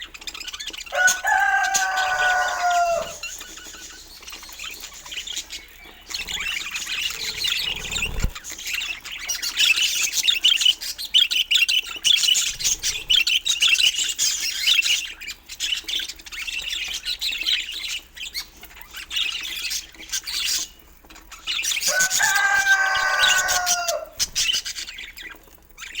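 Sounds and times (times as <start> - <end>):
long clear bird call: 0.9 - 3.3, 21.9 - 24.2
budgerigars chattering: 1.5 - 20.8.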